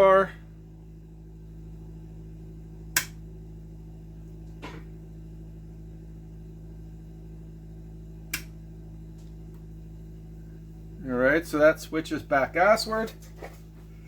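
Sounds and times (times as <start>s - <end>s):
electrical hum: 0.0s - 14.0s
power switch clicks: 2.9s - 3.2s, 8.3s - 8.6s.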